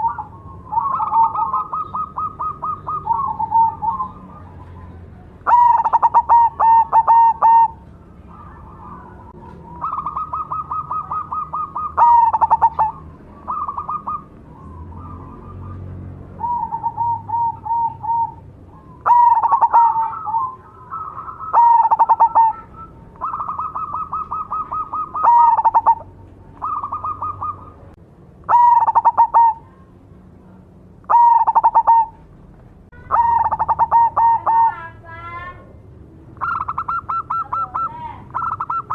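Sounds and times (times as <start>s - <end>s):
dove cooing: 0.0s - 29.8s, 31.0s - 32.3s, 33.0s - 35.0s, 36.4s - 38.9s.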